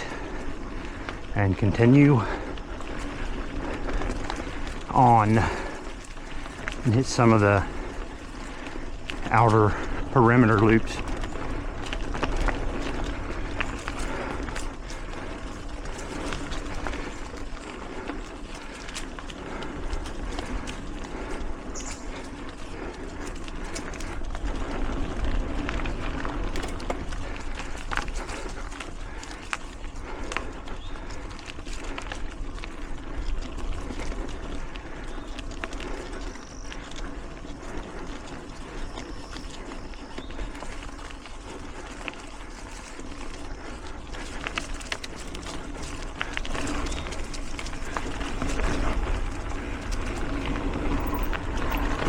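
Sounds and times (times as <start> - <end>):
bike clicks and rattles: 0.0 - 52.0
bike tyre and wind noise: 0.0 - 52.0.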